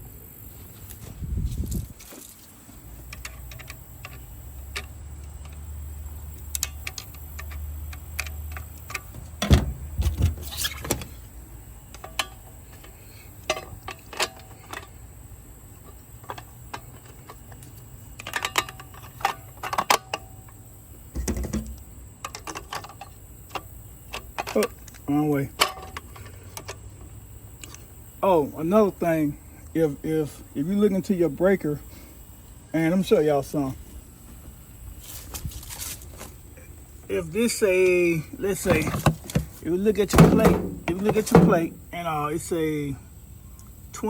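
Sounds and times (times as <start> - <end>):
metal tools clinking: 40.1 - 41.8.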